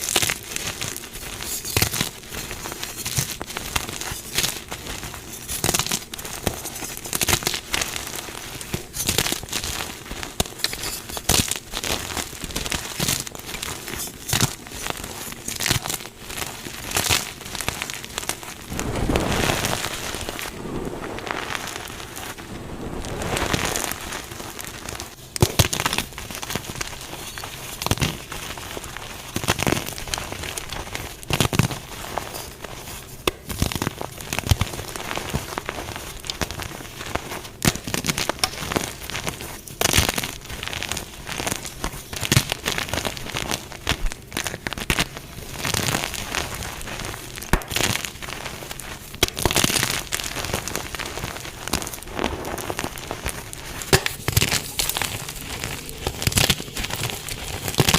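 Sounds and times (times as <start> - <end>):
chalk crunching and crumbling: 0.0 - 57.9
sharp cracks: 47.4 - 48.1, 51.7 - 57.9.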